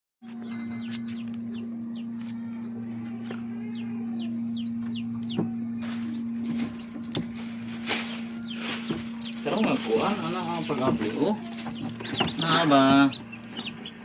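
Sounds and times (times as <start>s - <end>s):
low hum: 0.2s - 14.0s
chicks peeping: 0.3s - 14.0s
rustling: 5.8s - 12.5s.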